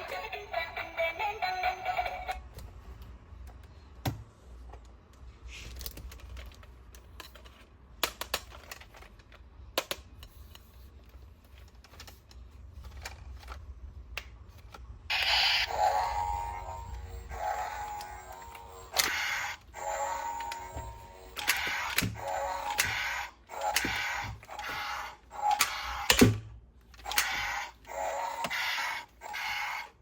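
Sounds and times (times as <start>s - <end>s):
plastic toys and packaging clicking: 2.4s - 30.0s
steady tones: 15.1s - 26.1s.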